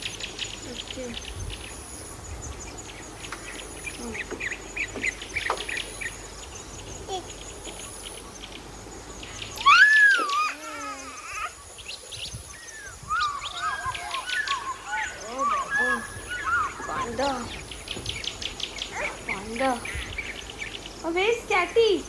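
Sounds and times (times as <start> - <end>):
birds chirping: 0.0 - 22.0
high warbling bird call: 9.5 - 11.6, 12.5 - 17.8.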